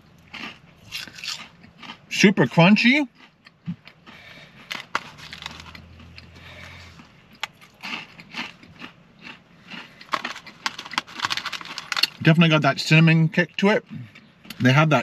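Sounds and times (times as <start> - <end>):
person chewing crunchy food: 0.0 - 2.2, 3.0 - 12.4.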